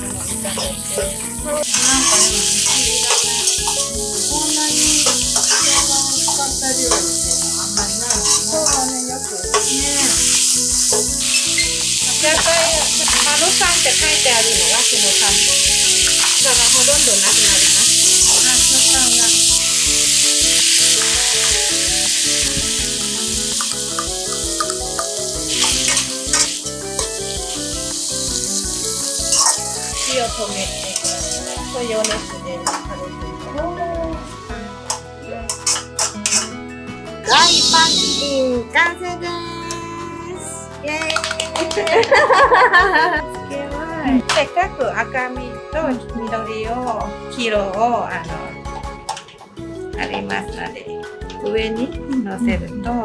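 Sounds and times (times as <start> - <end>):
food sizzling in a wok: 0.0 - 33.5, 34.8 - 36.6, 37.2 - 38.6
metal spatula scraping wok: 1.6 - 4.0, 5.0 - 8.9, 9.5 - 14.0, 23.5 - 27.4, 28.8 - 32.8, 34.9 - 36.6, 37.3 - 38.4.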